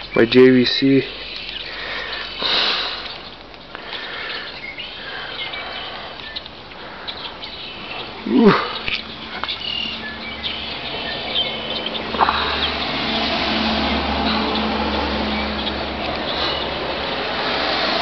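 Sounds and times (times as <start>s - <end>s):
small birds chirping: 0.0s - 18.0s
loud downward sweeping sound: 11.1s - 18.0s.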